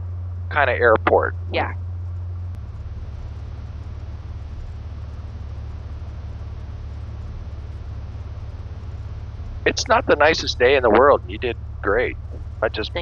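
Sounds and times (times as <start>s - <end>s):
propeller engine droning: 0.0s - 13.0s.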